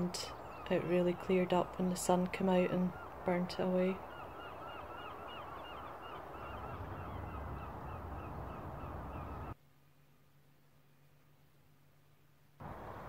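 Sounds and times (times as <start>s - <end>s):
wind rumbling on microphone: 0.0s - 9.6s, 12.6s - 13.0s.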